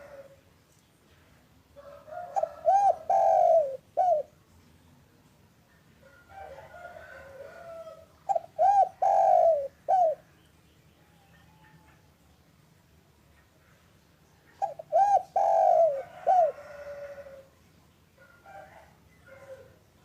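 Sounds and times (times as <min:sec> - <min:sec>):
dove cooing: 0:00.0 - 0:00.4, 0:01.8 - 0:04.4, 0:06.4 - 0:10.4, 0:14.5 - 0:17.5.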